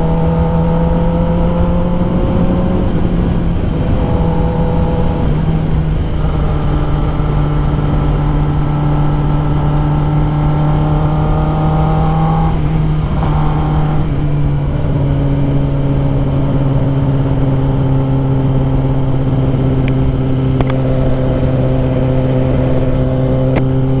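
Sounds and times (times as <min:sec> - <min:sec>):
motorcycle engine cruising: 0:00.0 - 0:24.0
wind rushing over microphone: 0:00.0 - 0:24.0.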